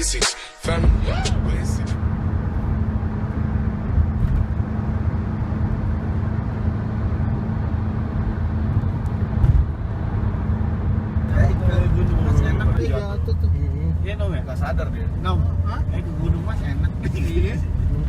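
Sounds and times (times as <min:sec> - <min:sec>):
road noise: 0:00.0 - 0:18.0
car engine rumble: 0:00.6 - 0:18.0.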